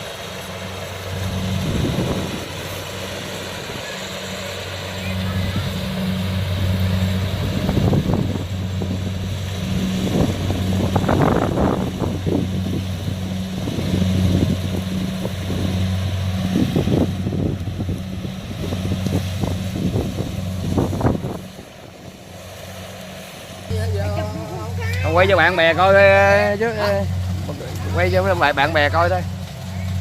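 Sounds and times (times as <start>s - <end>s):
wind buffeting microphone: 0.0s - 22.5s
diesel engine droning: 0.0s - 30.0s.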